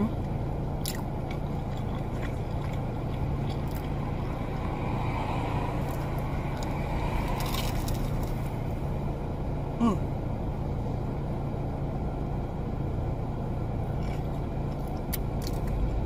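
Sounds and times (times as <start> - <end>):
low hum and rumble: 0.0 - 16.0
crunchy food chewing: 0.8 - 8.5.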